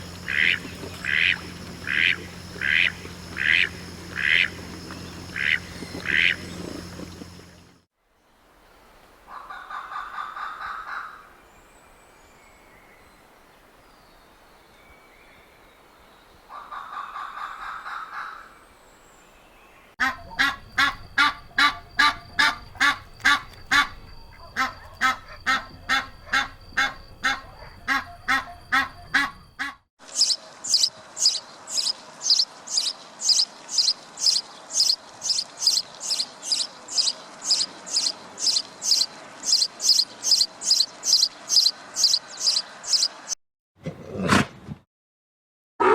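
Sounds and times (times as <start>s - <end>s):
waterfowl honking: 0.0s - 7.0s, 20.0s - 29.8s
rapid waterfowl calls: 0.0s - 7.7s, 9.3s - 11.2s, 16.5s - 18.5s, 20.0s - 43.1s
high-pitched chirping calls: 20.0s - 43.4s.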